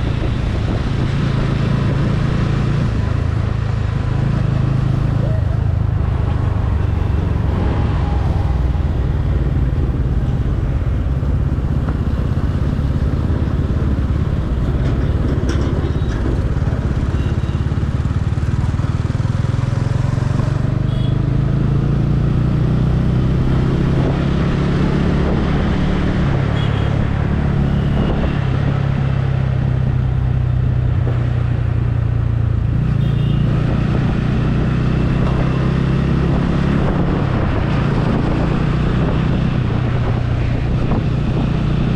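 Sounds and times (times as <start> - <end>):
road rumble: 0.0 - 41.9.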